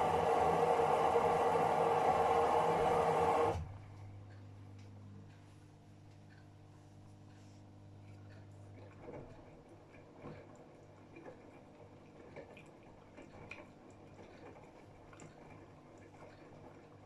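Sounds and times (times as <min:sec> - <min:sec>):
washing machine low hum: 0:00.0 - 0:17.0
laundry sloshing in washing machine: 0:08.6 - 0:17.0.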